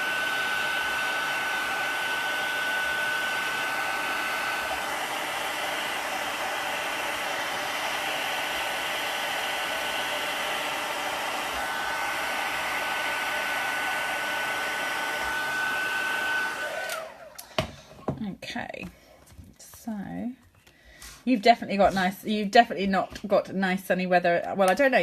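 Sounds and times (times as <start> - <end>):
heat gun whining: 0.0 - 18.1.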